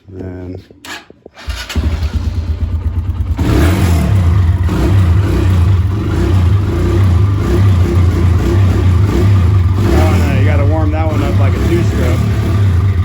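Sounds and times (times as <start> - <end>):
dirt bike engine running unevenly: 2.2 - 13.0.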